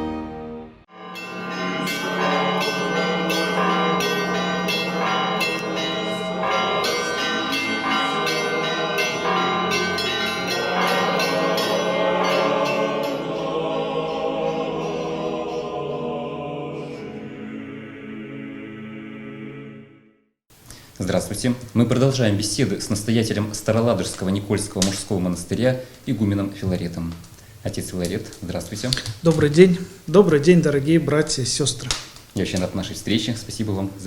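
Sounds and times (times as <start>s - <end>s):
church bells ringing: 0.9s - 16.2s.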